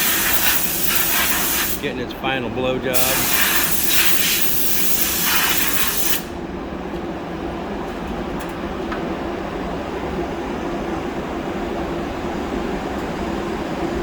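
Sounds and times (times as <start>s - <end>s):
compressed air blow gun hissing: 0.0s - 1.9s, 2.9s - 6.3s
low machine hum: 0.0s - 14.0s.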